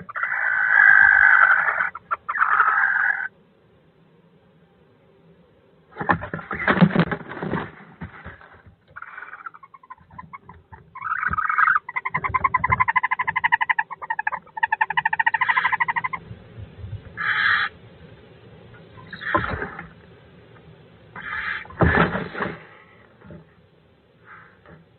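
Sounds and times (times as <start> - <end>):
rapid chattering bird trill: 0.0 - 3.3, 9.0 - 16.2, 17.2 - 17.8
harsh hissing bird calls: 0.0 - 4.9, 8.9 - 24.8.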